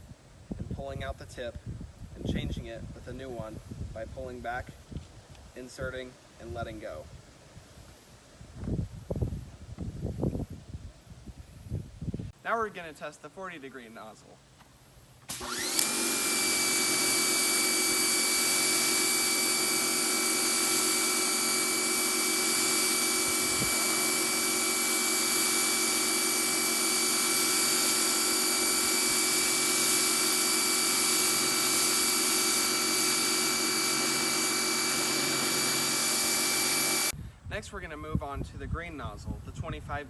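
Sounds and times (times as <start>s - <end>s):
pressure washer whine: 15.2s - 37.2s
water jet hissing: 15.3s - 37.2s.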